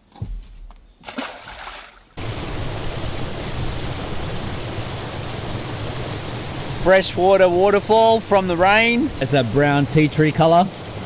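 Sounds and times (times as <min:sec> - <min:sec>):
soft low thump: 0:00.0 - 0:01.6
brief splash: 0:01.0 - 0:02.2
waterfall rushing: 0:02.2 - 0:11.0.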